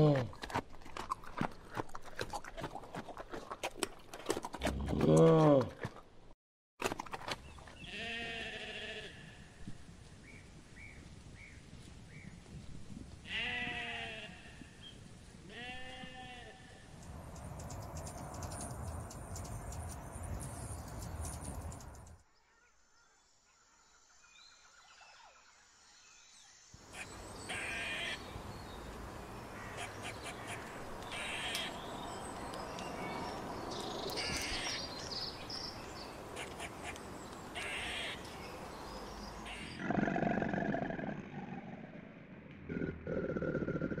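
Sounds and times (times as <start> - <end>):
sheep bleating: 7.9 - 9.4, 13.3 - 14.5
small birds chirping: 17.0 - 23.2, 26.0 - 40.8
harsh animal calls: 39.4 - 44.0.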